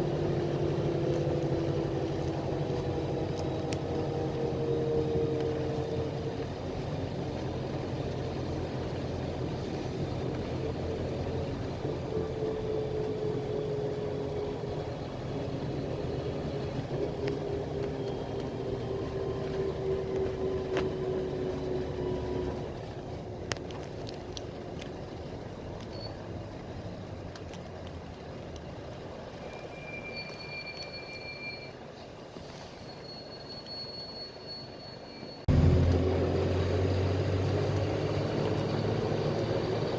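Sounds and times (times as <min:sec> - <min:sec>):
bus engine drone: 0:00.0 - 0:39.9
road noise: 0:00.0 - 0:39.9.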